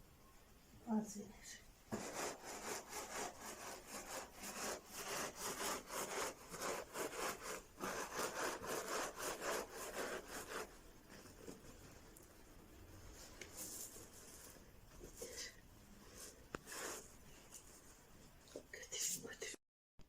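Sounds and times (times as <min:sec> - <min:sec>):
okra rubbed in cloth: 0:01.9 - 0:12.1, 0:13.0 - 0:18.4.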